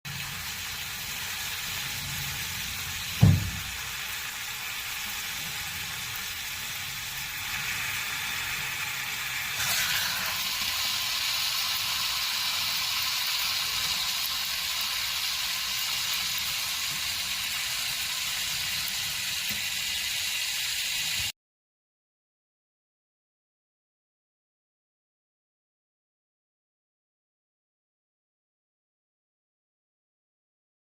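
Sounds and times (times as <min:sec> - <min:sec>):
water rushing through pipes: 0:00.1 - 0:21.3
sharp pipe knock: 0:03.2 - 0:03.7.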